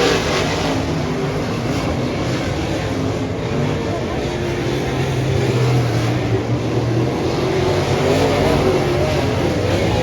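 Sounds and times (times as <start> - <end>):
race car engine revving: 0.0 - 10.0.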